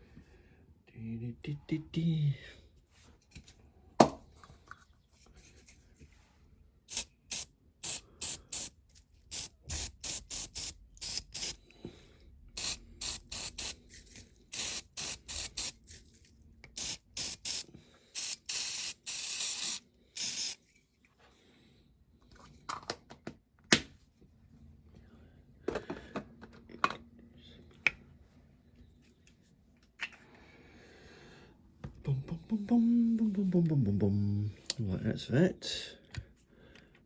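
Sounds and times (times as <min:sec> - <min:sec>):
aerosol spray can hissing: 0:06.9 - 0:08.7, 0:09.3 - 0:11.6, 0:12.6 - 0:13.8, 0:14.5 - 0:15.8, 0:16.8 - 0:20.6.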